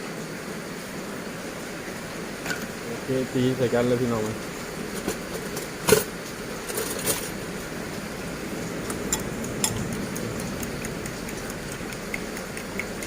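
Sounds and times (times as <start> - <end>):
eggs beaten in a bowl: 8.9 - 13.0.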